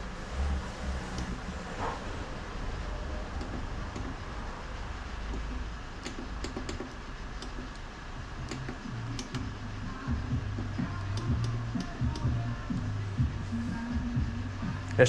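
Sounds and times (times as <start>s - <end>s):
steady low hum: 0.0s - 15.0s
metal tool clicks and taps: 3.4s - 4.2s, 5.3s - 7.9s, 8.5s - 9.5s, 10.6s - 12.3s.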